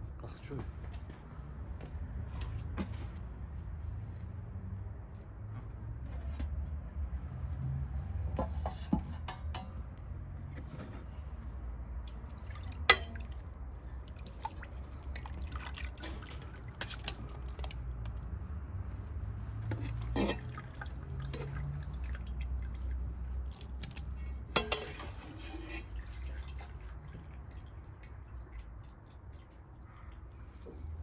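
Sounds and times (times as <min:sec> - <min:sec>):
water dripping and splashing: 0:11.9 - 0:24.8, 0:25.9 - 0:31.0.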